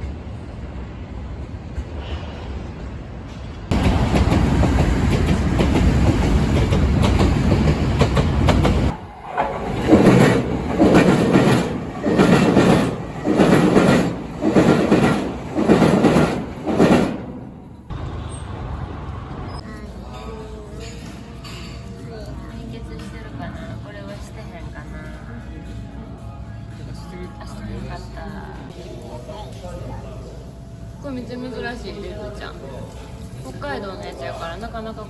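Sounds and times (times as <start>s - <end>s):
train rushing past: 0.0s - 20.8s
train wheels thumping: 3.4s - 17.9s.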